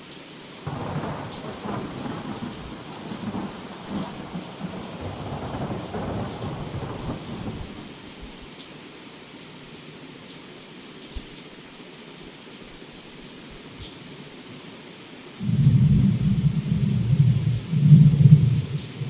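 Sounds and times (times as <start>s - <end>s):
heavy rain hissing: 0.4s - 9.0s, 14.0s - 19.0s
thunder rumble: 0.7s - 8.0s, 15.4s - 19.0s.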